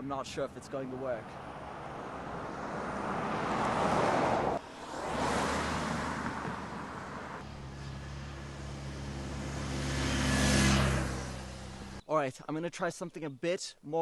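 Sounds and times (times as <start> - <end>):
cars passing on road: 0.4 - 12.0
low engine hum: 4.2 - 12.0.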